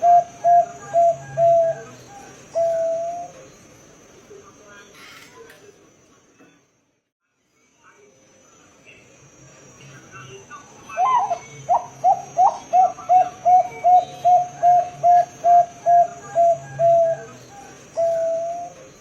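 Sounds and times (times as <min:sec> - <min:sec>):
dove cooing: 0:00.0 - 0:03.5, 0:11.0 - 0:19.0.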